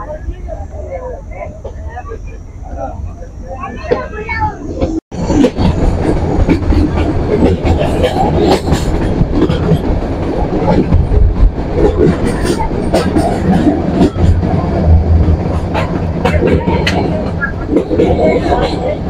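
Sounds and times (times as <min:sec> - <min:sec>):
train rumbling: 0:00.0 - 0:19.0
wheels clicking over rails: 0:04.8 - 0:19.0.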